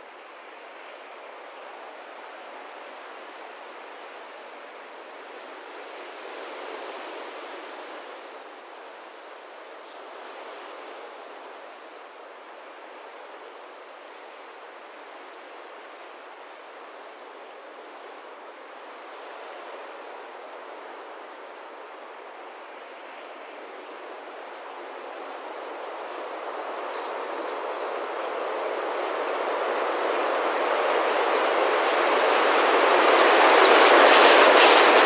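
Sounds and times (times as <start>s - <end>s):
rushing whoosh of flock: 30.9s - 35.0s.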